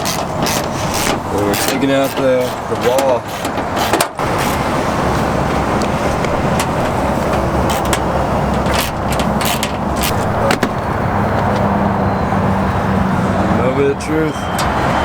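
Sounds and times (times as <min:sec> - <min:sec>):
sharp clicks and knocks: 0:00.0 - 0:04.6, 0:05.8 - 0:11.7
engine and road noise: 0:00.0 - 0:15.0.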